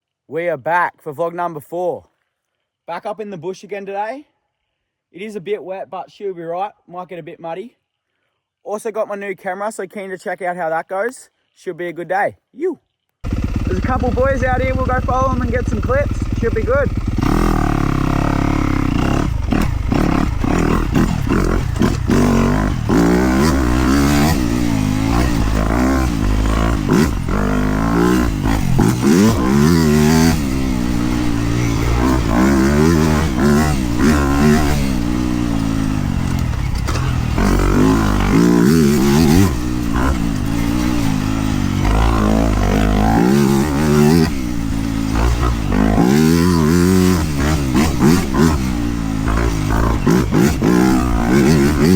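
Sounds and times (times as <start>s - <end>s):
dirt bike engine revving: 13.2s - 51.9s.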